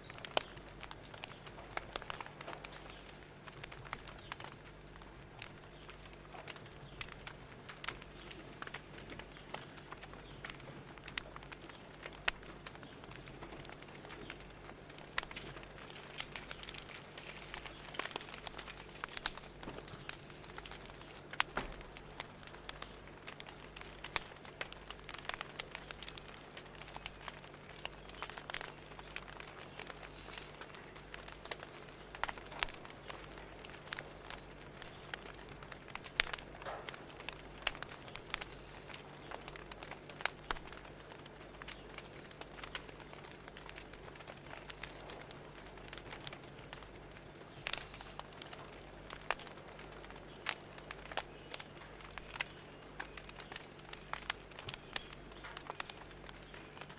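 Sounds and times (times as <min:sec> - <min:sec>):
fire crackling: 0:00.0 - 0:56.9
soft hiss and low hum: 0:00.0 - 0:56.9.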